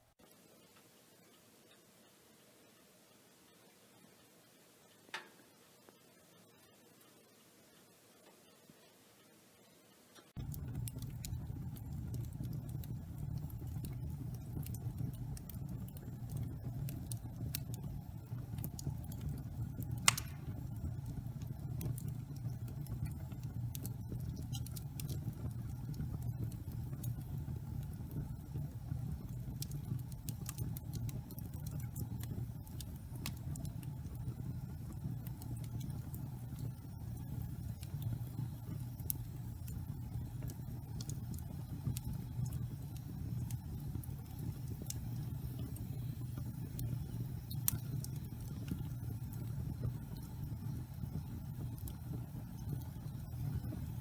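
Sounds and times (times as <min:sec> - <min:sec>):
fire crackles and pops: 0:10.2 - 0:54.0
low rumble of flames: 0:10.4 - 0:54.0
sharp loud fire pop: 0:20.1 - 0:20.5.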